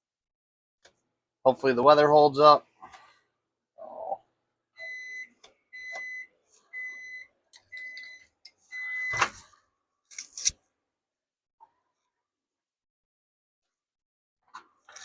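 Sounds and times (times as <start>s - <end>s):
microwave beeping: 4.8s - 9.4s.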